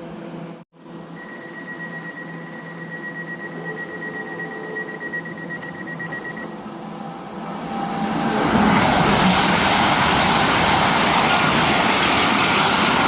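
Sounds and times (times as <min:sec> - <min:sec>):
steady high-pitched tone: 0:00.8 - 0:13.0
express train rushing past: 0:04.9 - 0:13.0.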